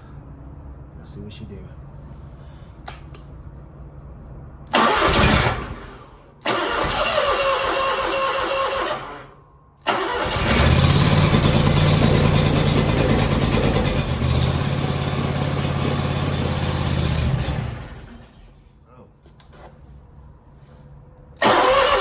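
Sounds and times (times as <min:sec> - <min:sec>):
mower engine cranking: 0:04.7 - 0:05.8, 0:06.5 - 0:09.2, 0:09.9 - 0:18.3, 0:21.4 - 0:22.0
mower engine running: 0:09.9 - 0:18.2.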